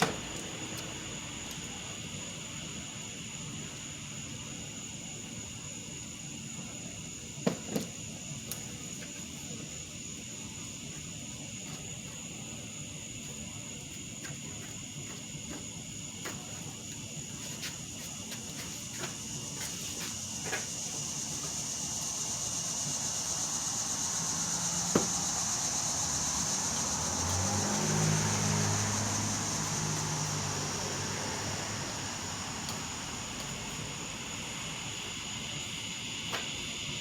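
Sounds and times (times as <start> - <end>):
vehicle passing: 24.5 - 33.3.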